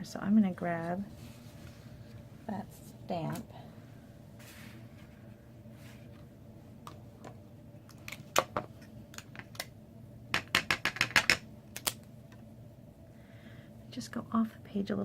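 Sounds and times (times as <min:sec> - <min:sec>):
rubber stamp tapping on ink pad: 0:10.4 - 0:11.4.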